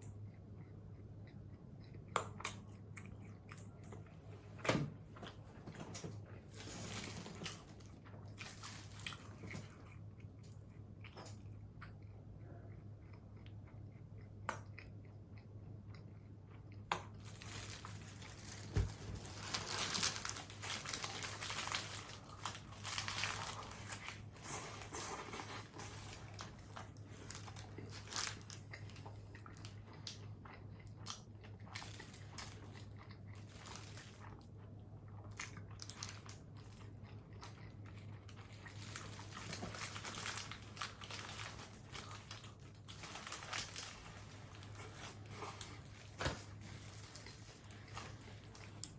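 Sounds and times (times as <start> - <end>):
person chewing crunchy food: 0.0 - 4.6, 6.2 - 48.9
steady low hum: 0.0 - 48.9.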